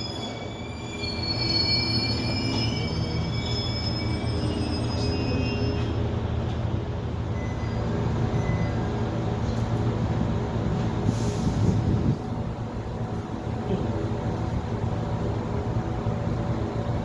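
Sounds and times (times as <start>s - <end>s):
wheel squeal: 0.0s - 6.0s
diesel railcar engine drone: 0.0s - 17.0s.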